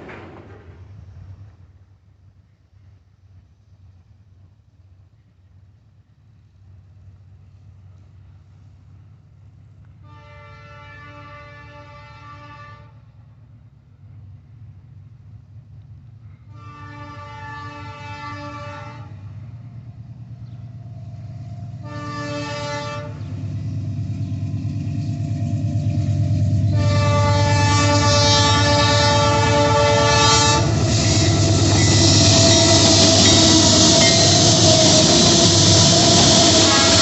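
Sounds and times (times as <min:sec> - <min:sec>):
train wheels on rails: 0:00.0 - 0:10.1, 0:13.0 - 0:37.0
locomotive air horn blasts: 0:10.0 - 0:13.1, 0:16.4 - 0:19.4, 0:21.8 - 0:23.4, 0:26.6 - 0:37.0
low engine rumble: 0:17.4 - 0:37.0.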